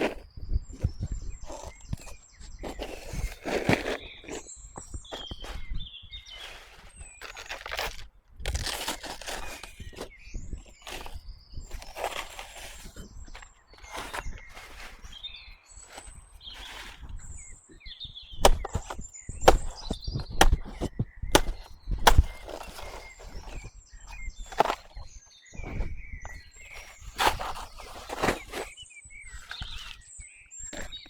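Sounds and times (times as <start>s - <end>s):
birds chirping: 0.0s - 31.0s
rustling through dry vegetation: 0.0s - 31.0s
sharp chopping blows: 18.4s - 23.7s.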